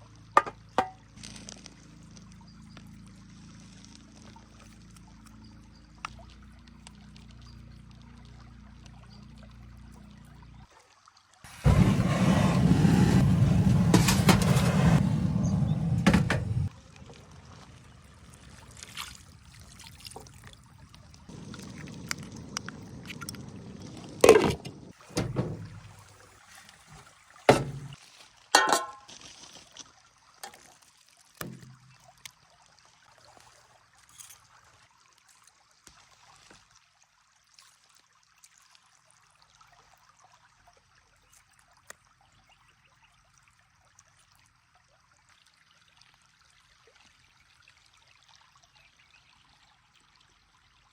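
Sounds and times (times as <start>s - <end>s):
liquid pouring: 18.5s - 28.0s.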